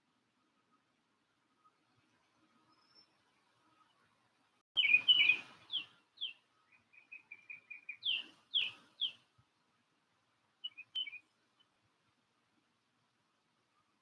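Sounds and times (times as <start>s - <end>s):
songbird singing: 1.6s - 12.2s.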